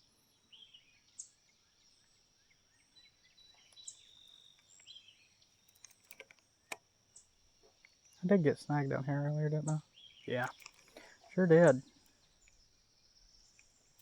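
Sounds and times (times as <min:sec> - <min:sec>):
birds chirping: 0:00.0 - 0:14.0
quick clicks: 0:05.7 - 0:06.8, 0:10.3 - 0:12.6.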